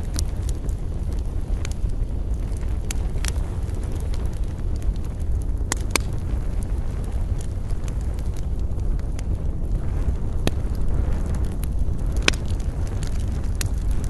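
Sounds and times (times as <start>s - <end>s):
campfire crackling and popping: 0.0s - 14.0s
wind rumble: 0.0s - 14.0s.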